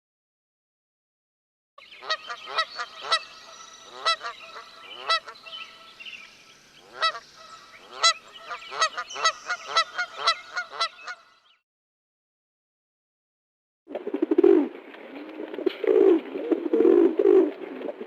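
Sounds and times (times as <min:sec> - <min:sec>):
geese honking: 0:02.0 - 0:06.0, 0:06.8 - 0:11.4.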